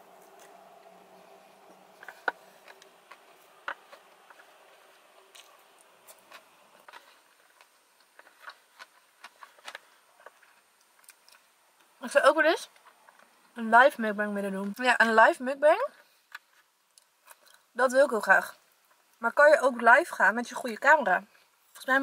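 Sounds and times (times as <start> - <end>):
person chewing with wet clicks: 10.5 - 11.9.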